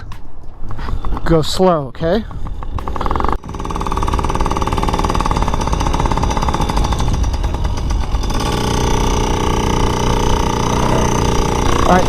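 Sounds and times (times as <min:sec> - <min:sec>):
small motorcycle engine: 0:02.6 - 0:12.0.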